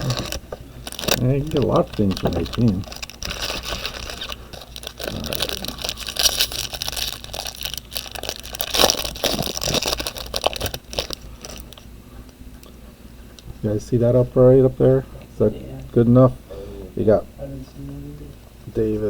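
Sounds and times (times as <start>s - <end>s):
wrappers tearing and crinkling: 0.0s - 11.8s
cards scraping together: 1.0s - 7.3s.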